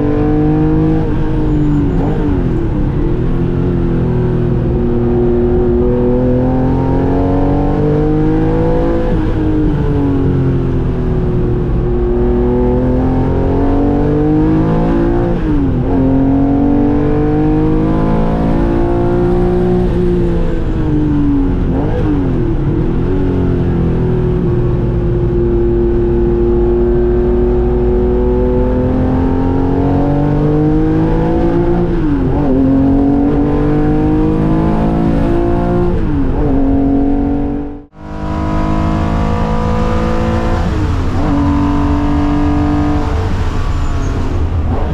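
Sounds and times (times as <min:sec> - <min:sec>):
race car engine at high revs: 0:00.0 - 0:44.9.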